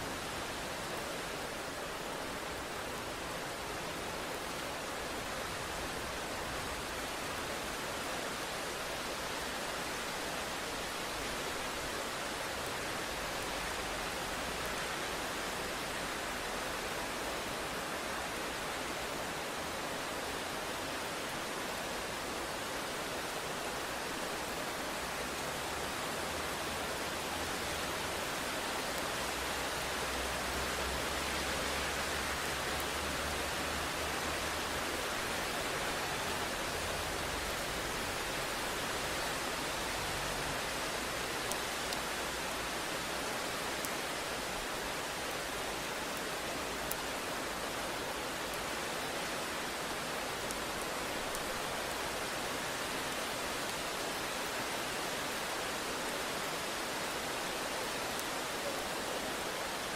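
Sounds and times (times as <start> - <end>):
rain hiss: 0.0 - 59.9.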